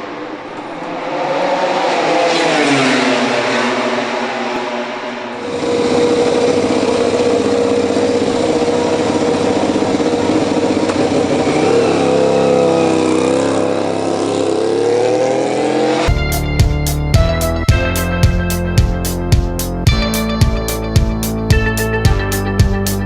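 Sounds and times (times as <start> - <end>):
racing motorcycle engine revving: 0.0 - 16.2.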